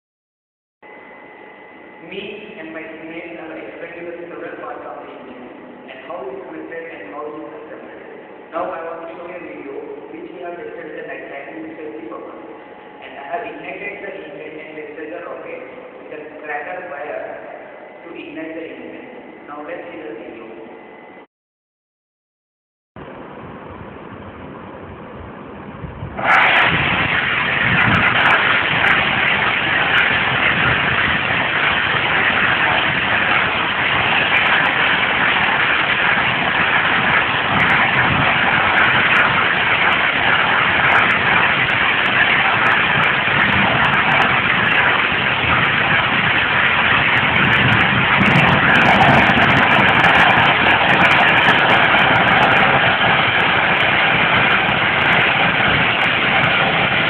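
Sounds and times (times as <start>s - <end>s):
rocket engine roaring hiss: 26.1s - 57.0s
sharp crackles: 26.2s - 57.0s.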